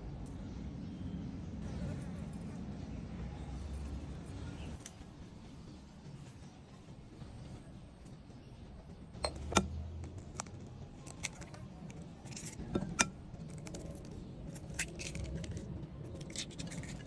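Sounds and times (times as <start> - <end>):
utensils clinking against dishes: 9.2 - 17.0.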